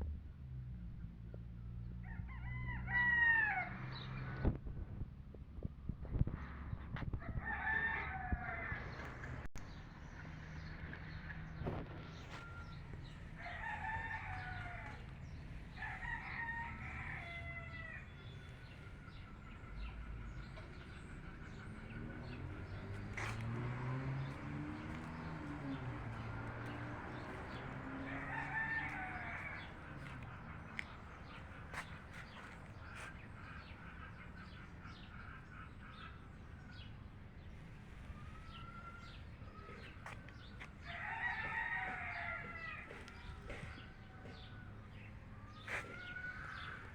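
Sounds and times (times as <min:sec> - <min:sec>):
rooster crowing: 0:02.0 - 0:04.0, 0:07.3 - 0:09.1, 0:13.4 - 0:18.5, 0:25.5 - 0:30.2, 0:40.8 - 0:43.1
small birds: 0:08.4 - 0:46.9.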